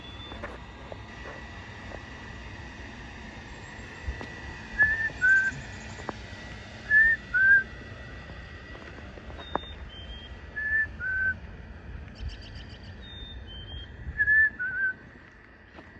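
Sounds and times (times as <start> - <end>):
bird whistling: 4.8 - 5.8, 6.9 - 7.7, 9.4 - 11.4, 12.3 - 15.0.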